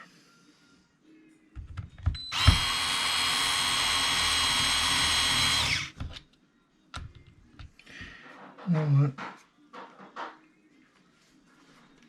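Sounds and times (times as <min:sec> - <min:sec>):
power driver running: 0:02.3 - 0:05.9.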